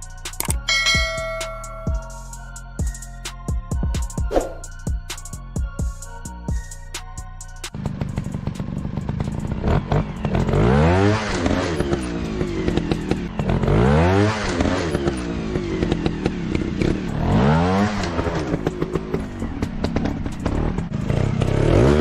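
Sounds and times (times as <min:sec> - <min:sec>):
dirt bike engine revving: 0:07.8 - 0:22.0.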